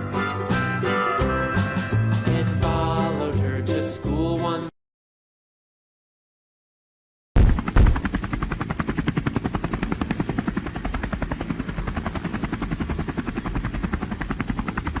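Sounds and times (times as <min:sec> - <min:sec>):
helicopter rotor blade beats: 0:07.4 - 0:15.0.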